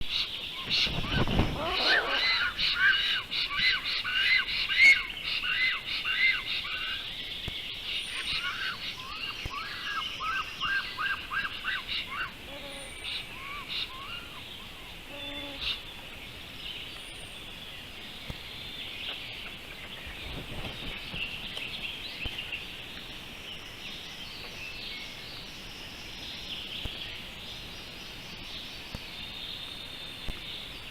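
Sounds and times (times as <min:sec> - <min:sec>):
small birds chirping: 0:00.0 - 0:30.9
high-pitched bird chatter: 0:00.9 - 0:05.7.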